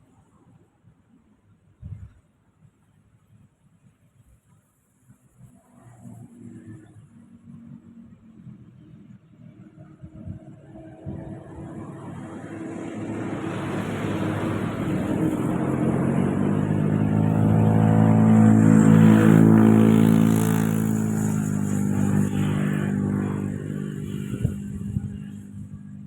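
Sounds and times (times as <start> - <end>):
vehicle engine passing by: 5.4 - 26.0.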